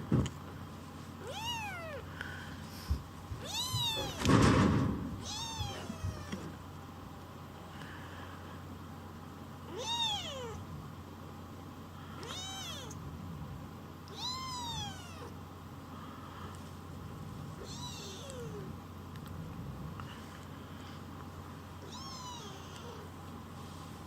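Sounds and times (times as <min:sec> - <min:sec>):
kitten meowing: 0:01.2 - 0:02.0, 0:03.4 - 0:04.3, 0:05.2 - 0:06.5, 0:09.7 - 0:10.6, 0:12.2 - 0:13.0, 0:14.1 - 0:15.3, 0:17.6 - 0:18.7, 0:21.8 - 0:23.0.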